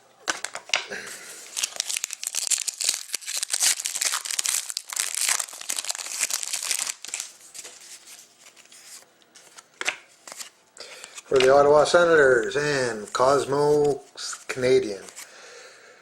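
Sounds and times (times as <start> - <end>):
cards rustling and clicking: 0.3 - 0.9, 1.5 - 11.6, 12.4 - 15.3
plastic wrapper crinkling and tearing: 1.4 - 9.6.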